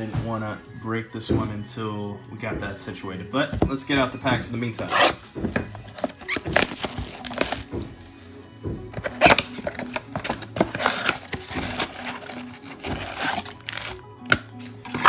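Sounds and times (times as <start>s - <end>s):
faint background music: 0.0s - 15.0s
boxes knocking on a table: 3.5s - 8.1s, 8.7s - 15.0s
plastic wrapper crinkling: 4.8s - 8.2s, 9.0s - 15.0s.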